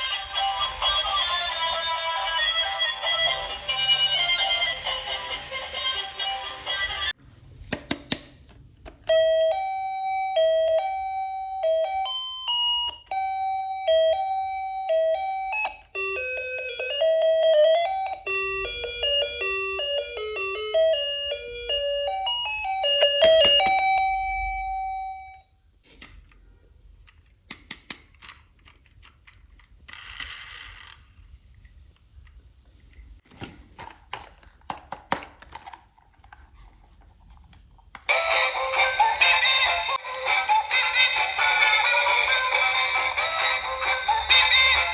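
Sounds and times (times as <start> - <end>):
toy beeping tune: 9.1 - 25.4, 38.1 - 44.9.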